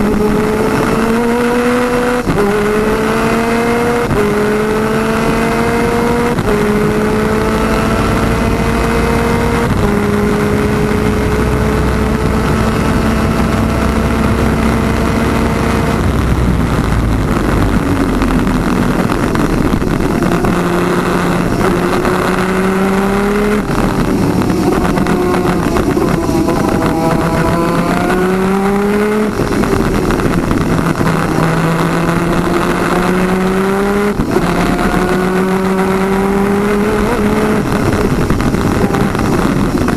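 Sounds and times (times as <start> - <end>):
kart engine revving through gears: 0.0 - 39.9
wind noise: 0.0 - 39.9.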